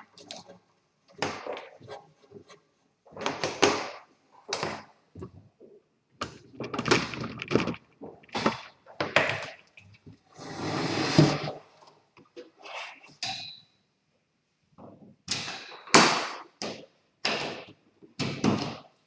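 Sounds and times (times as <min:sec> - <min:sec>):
rushing scrape: 0:10.4 - 0:11.6.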